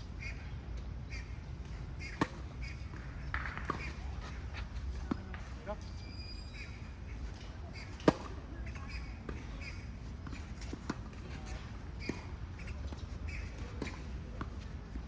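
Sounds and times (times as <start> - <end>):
tennis ball struck: 2.1 - 4.0, 7.8 - 8.4.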